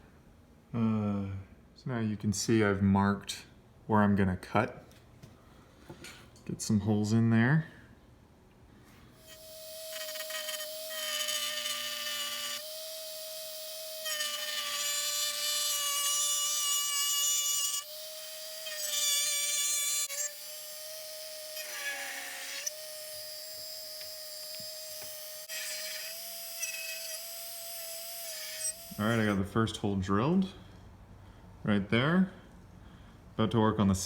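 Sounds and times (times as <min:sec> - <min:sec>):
power drill cutting plastic: 0:09.2 - 0:29.4.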